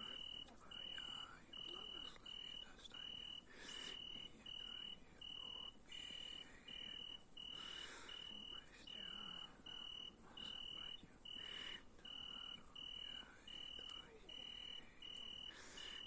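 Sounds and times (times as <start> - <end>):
crickets chirping: 0.0 - 16.0
high insect trill: 0.0 - 16.0.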